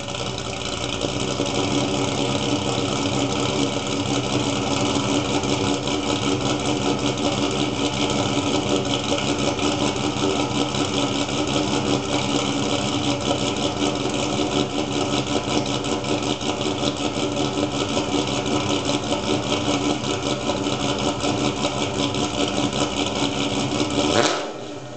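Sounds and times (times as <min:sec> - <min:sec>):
car engine idling: 0:00.0 - 0:24.9.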